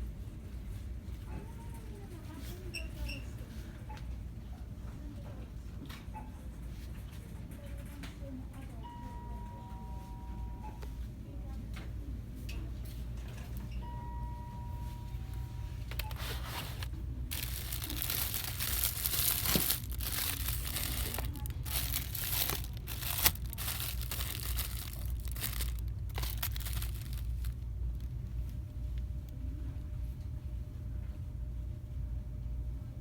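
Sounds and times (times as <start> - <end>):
low steady hum: 7.9 - 33.0
plastic packaging crinkling: 15.9 - 28.6.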